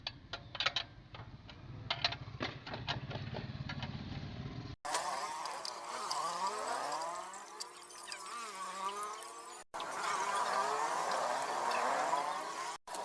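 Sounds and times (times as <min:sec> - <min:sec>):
wavering pitched tones: 0:04.9 - 0:13.0.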